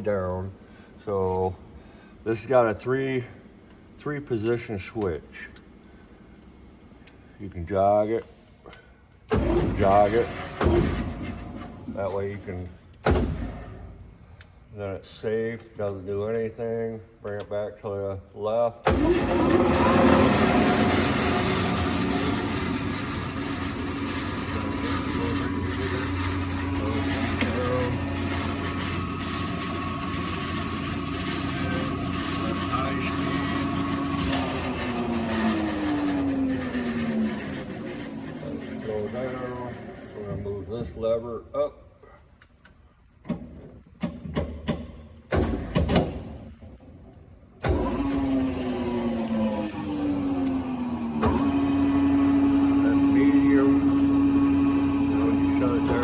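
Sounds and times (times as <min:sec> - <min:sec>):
bandsaw motor humming: 0:09.3 - 0:12.6, 0:18.9 - 0:41.1, 0:47.7 - 0:56.0
bandsaw wheels and blade whirring: 0:09.3 - 0:12.6, 0:18.9 - 0:41.1, 0:47.6 - 0:56.0.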